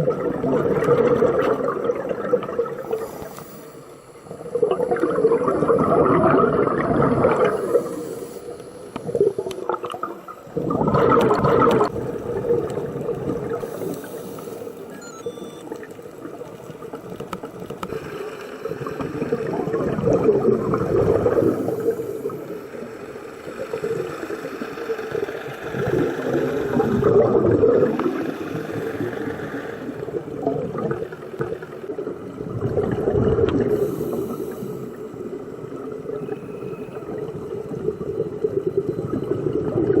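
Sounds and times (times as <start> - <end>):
underwater bubbles gurgling: 0.0 - 40.0.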